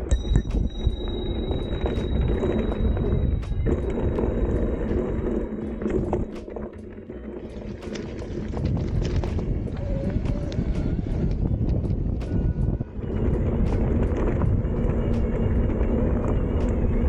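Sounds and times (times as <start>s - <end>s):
bike clicking and rattling: 0.0s - 17.0s
wind on microphone: 0.0s - 17.0s
tyre rumble on dirt: 7.4s - 12.4s.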